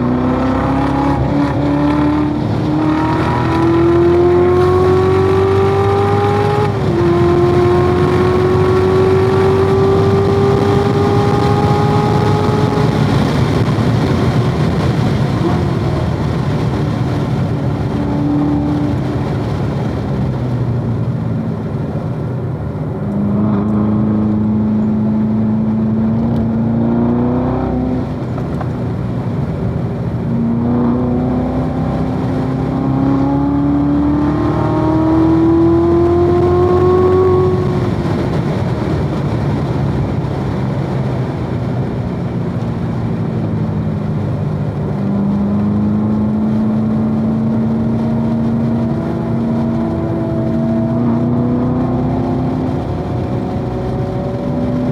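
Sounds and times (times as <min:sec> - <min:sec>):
car engine revving under load: 0:00.0 - 0:54.9.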